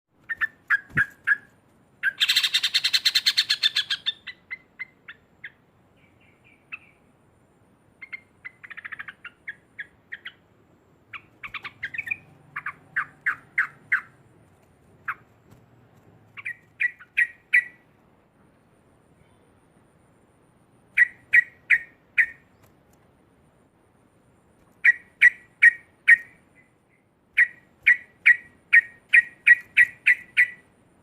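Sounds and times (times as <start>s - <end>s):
bulbul calling: 0.2s - 7.0s, 8.0s - 10.4s, 11.1s - 14.2s, 16.3s - 17.8s, 20.9s - 22.6s, 24.8s - 30.7s.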